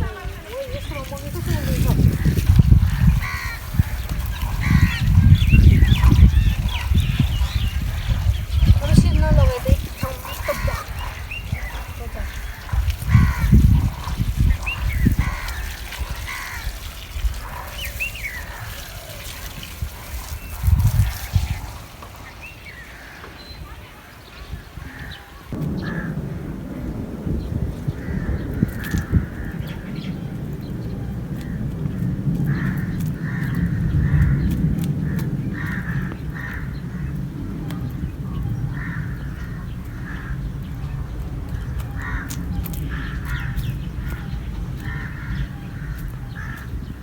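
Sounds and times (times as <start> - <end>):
steady low rumble: 0.0 - 17.5, 25.5 - 47.0
poultry harsh calls: 0.0 - 20.6
crows cawing: 0.1 - 19.3, 32.4 - 37.2, 38.7 - 40.6, 41.6 - 46.8.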